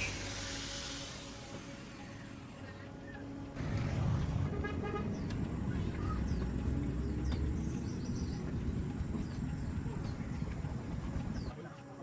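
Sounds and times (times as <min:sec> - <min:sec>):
low steady rumble: 0:02.2 - 0:11.5.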